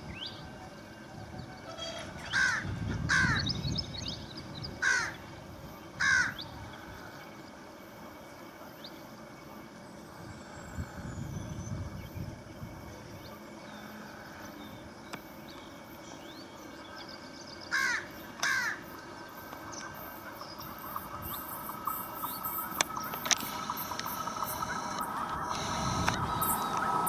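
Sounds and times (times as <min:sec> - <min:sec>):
crow cawing: 0:01.8 - 0:03.4, 0:04.8 - 0:05.2, 0:06.0 - 0:06.4, 0:17.7 - 0:18.8
scattered clicks: 0:22.2 - 0:27.0.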